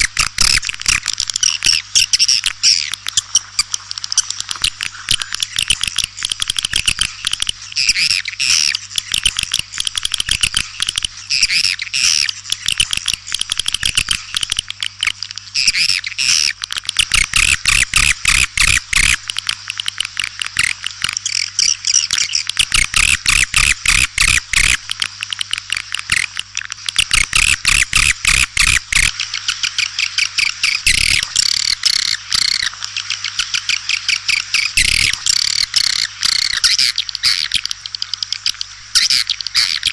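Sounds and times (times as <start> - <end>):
sharp clicks: 0.0 - 39.9
swiftlets twittering: 25.4 - 39.9.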